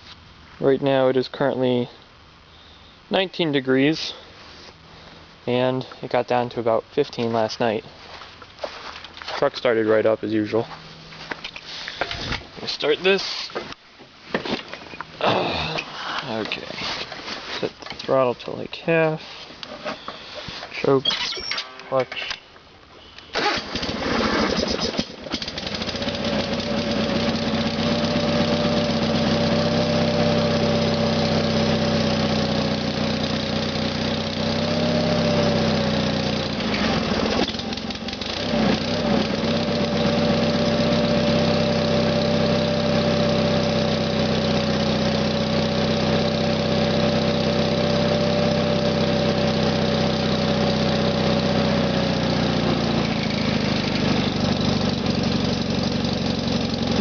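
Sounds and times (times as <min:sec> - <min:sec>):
tractor engine cranking and running: 0:23.3 - 0:57.0.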